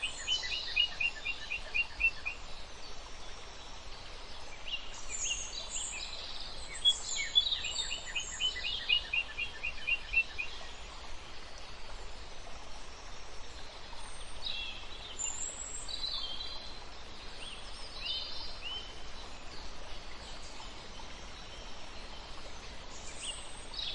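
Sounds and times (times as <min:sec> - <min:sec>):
steady background hiss: 0:00.0 - 0:23.9.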